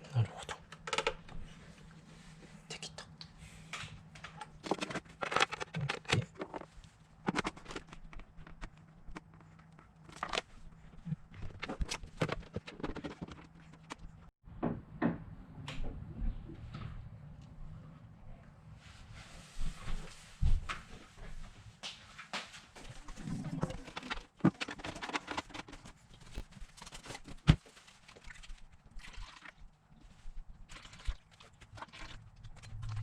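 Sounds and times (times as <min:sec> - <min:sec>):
plastic parts clicking and knocking: 0:00.6 - 0:01.4, 0:04.1 - 0:10.5, 0:11.3 - 0:15.2, 0:23.5 - 0:26.4.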